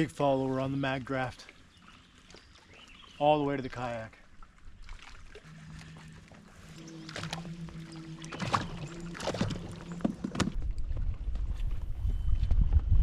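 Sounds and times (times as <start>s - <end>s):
low rumbling water: 0.0s - 13.0s
gear knocking against kayak hull: 8.5s - 10.7s
wind noise: 10.1s - 13.0s.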